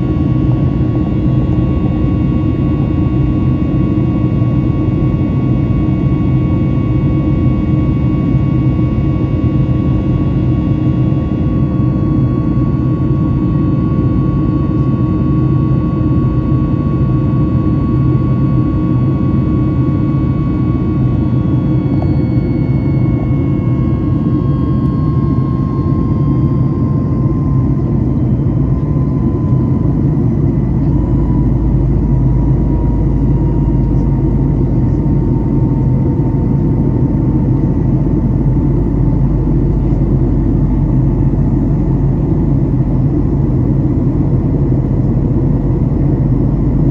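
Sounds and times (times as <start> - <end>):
jet engine rumble with whine: 0.0 - 46.9.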